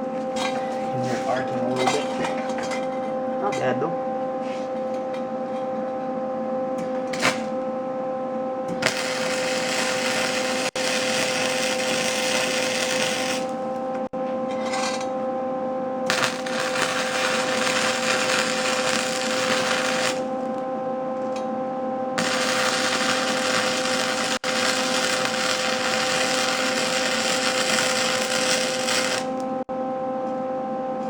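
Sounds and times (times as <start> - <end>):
steady hum: 0.0 - 14.1
welder arc crackling: 0.3 - 2.4, 8.7 - 14.1, 16.1 - 20.6, 22.2 - 29.7.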